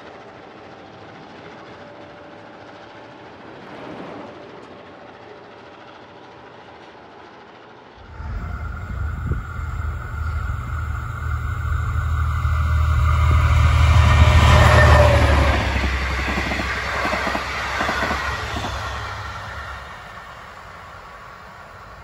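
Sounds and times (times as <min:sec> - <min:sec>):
freight wagon wheels rumbling on rail: 0:03.0 - 0:22.0
diesel locomotive engine rumble: 0:04.5 - 0:22.0.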